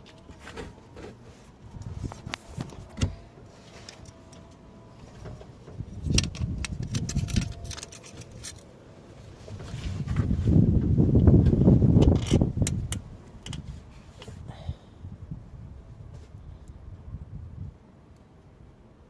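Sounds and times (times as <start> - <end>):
rumbling rustling handling noise: 0.0 - 14.7.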